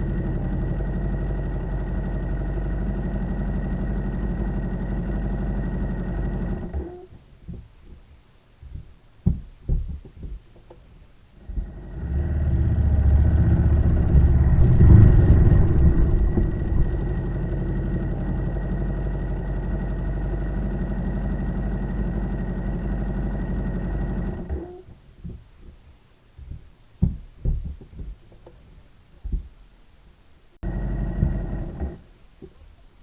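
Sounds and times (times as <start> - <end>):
engine running: 0.0 - 6.9, 11.4 - 24.6, 30.6 - 32.0.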